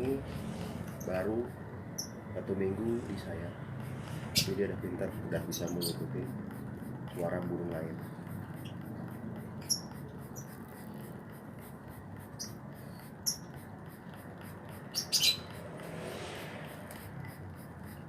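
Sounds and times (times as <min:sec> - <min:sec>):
steady low hum: 0:00.0 - 0:18.0
bird giving high chirps: 0:14.9 - 0:15.5.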